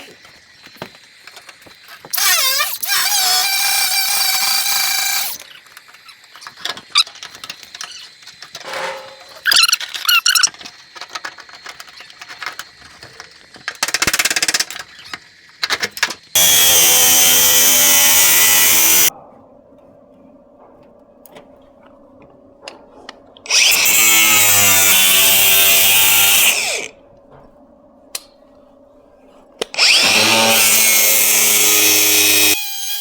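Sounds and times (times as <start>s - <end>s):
power tool cutting sheet steel: 2.2s - 5.4s, 16.4s - 19.1s, 23.5s - 26.9s, 29.7s - 33.0s.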